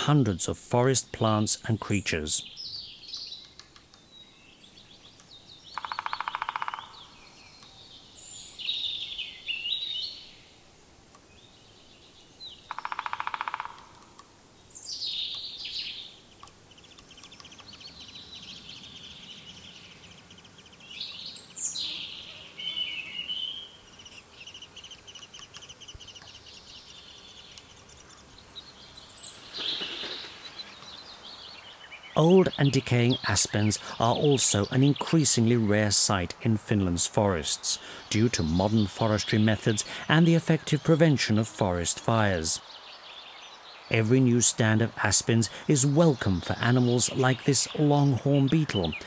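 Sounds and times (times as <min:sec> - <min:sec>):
forest birds singing: 0:00.0 - 0:49.0
loud rapid bird rattles: 0:05.7 - 0:07.1, 0:12.7 - 0:14.1.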